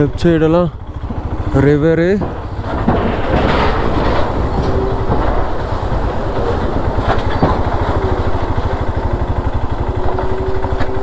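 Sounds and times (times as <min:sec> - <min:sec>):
vehicle engine pulsing: 0:00.0 - 0:11.0
wind and road noise: 0:00.0 - 0:11.0
short knocks: 0:00.8 - 0:08.6.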